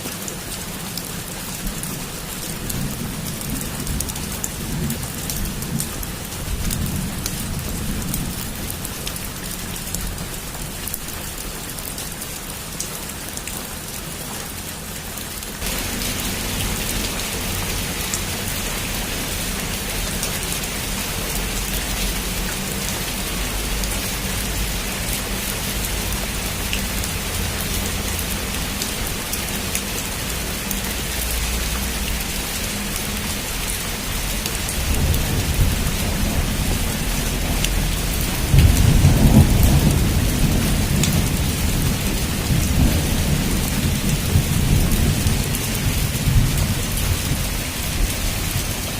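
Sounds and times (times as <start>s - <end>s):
heavy rain pouring: 0.0s - 48.9s
low rumble of thunder: 2.5s - 11.1s, 34.6s - 48.8s.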